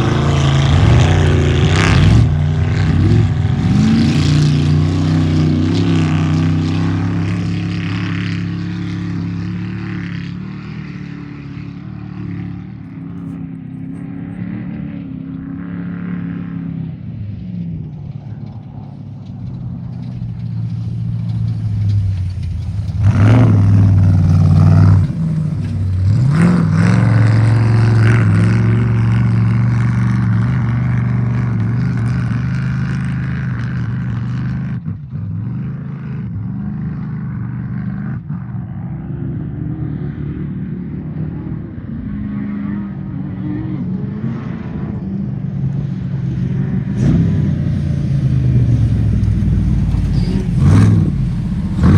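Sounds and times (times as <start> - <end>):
second engine building: 0.0 - 9.9, 17.8 - 34.1, 45.6 - 51.9
race vehicle engine revving: 0.0 - 17.1, 17.8 - 51.9.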